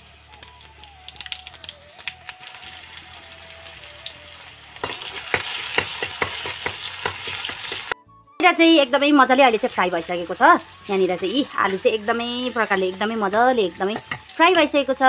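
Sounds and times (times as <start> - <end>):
vegetables sizzling in hot oil: 0.0 - 8.0, 9.2 - 15.0
ladle stirring a pan: 4.8 - 8.0.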